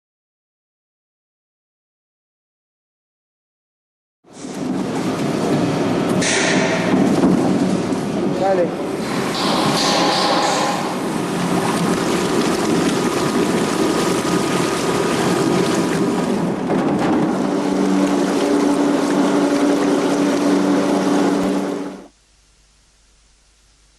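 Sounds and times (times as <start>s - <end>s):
pump humming: 4.3s - 22.2s
water jets churning: 4.4s - 22.1s.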